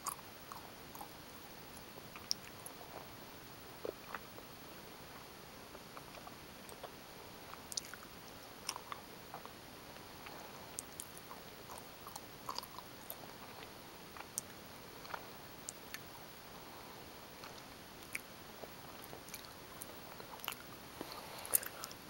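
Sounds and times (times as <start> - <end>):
faint steady hiss: 0.0 - 22.0
wet mouth chewing clicks: 7.7 - 8.0, 8.6 - 9.5.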